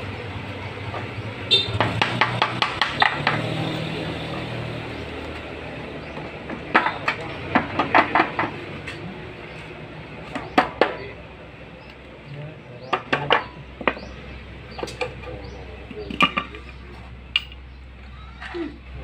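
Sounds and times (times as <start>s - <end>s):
metal tools clinking on engine parts: 12.8s - 17.8s.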